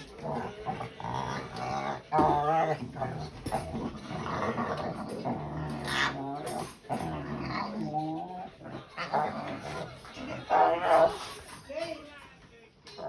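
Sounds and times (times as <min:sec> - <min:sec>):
dog growling and whimpering: 0:00.1 - 0:11.4.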